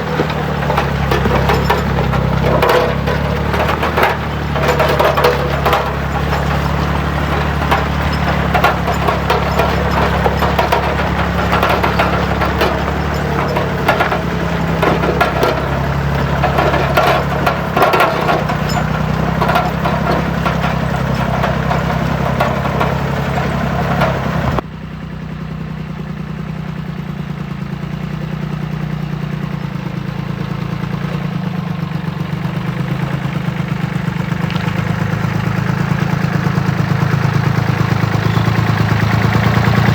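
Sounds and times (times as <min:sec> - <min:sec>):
clattering and knocking: 0:00.0 - 0:24.6, 0:34.4 - 0:39.9
tractor engine idling: 0:00.0 - 0:39.9.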